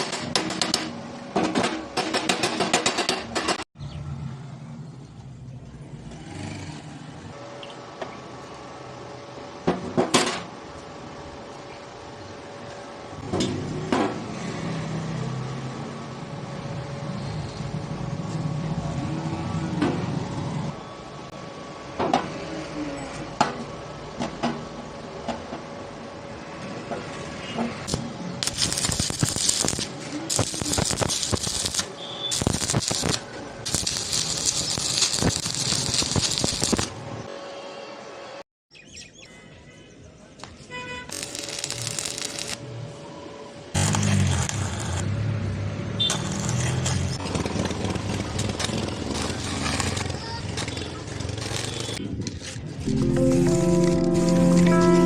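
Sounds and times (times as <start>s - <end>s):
welding arc buzzing: 27.9s - 37.0s, 41.1s - 42.6s, 43.8s - 45.2s, 46.0s - 52.0s
quiet background music: 52.9s - 55.0s.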